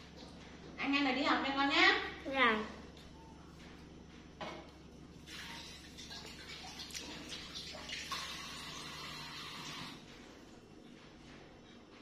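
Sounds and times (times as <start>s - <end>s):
water running: 5.2s - 10.2s.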